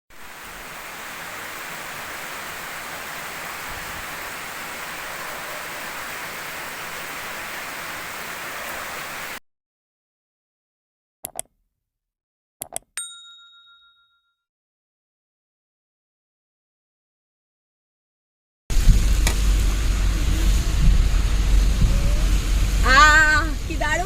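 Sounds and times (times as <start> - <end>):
rain falling steadily: 0.1 - 9.4, 18.7 - 24.0.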